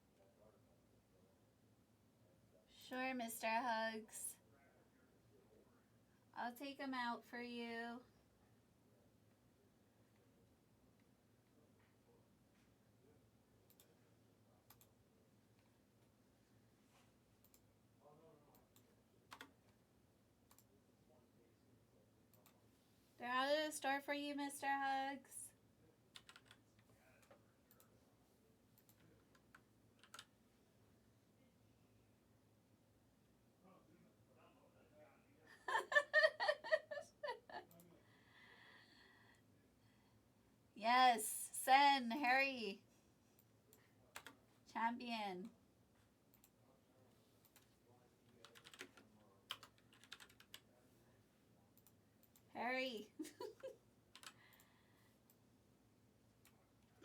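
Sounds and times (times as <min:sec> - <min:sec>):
computer keyboard typing: 0:18.7 - 0:19.7, 0:26.1 - 0:26.6, 0:28.8 - 0:30.4, 0:44.1 - 0:44.4, 0:48.3 - 0:50.7, 0:54.1 - 0:54.4.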